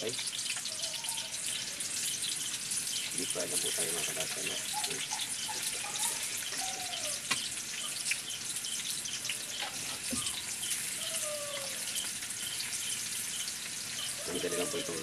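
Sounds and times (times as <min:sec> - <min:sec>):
vegetables deep-frying in hot oil: 0:00.0 - 0:15.0.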